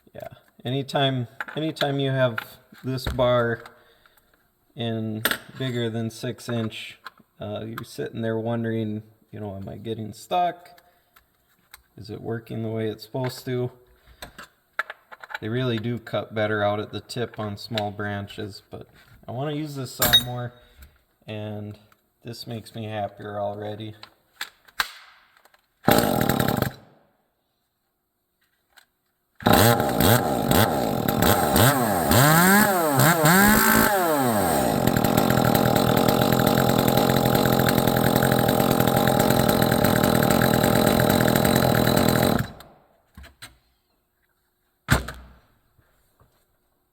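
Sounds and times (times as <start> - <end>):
chainsaw revving and running: 25.9 - 26.8, 29.4 - 42.7.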